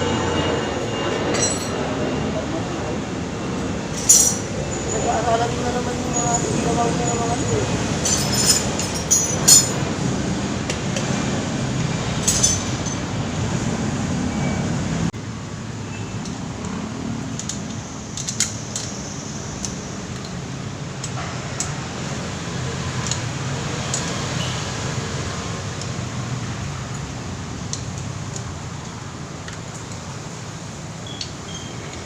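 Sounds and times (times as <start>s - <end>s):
metal tools clinking: 1.3s - 1.8s, 3.9s - 5.2s, 8.0s - 9.8s, 12.2s - 13.1s.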